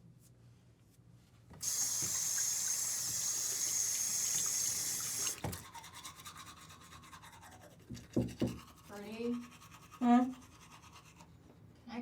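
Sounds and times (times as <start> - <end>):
tap water running into sink: 1.6 - 5.7.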